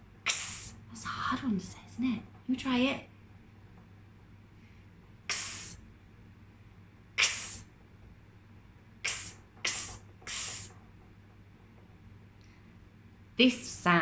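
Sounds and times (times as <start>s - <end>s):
woman saying hissed ks: 0.3s - 2.2s, 5.3s - 5.8s, 7.2s - 7.7s, 9.0s - 10.8s.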